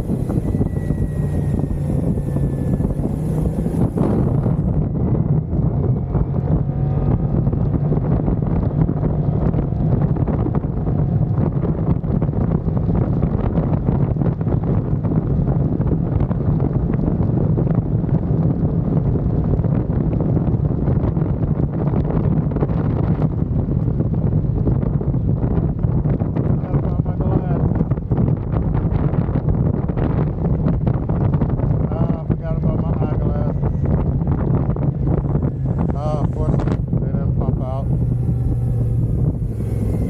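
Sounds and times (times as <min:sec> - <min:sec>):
scooter engine droning: 0:00.0 - 0:08.5, 0:31.7 - 0:40.0
wind buffeting microphone: 0:00.0 - 0:40.0.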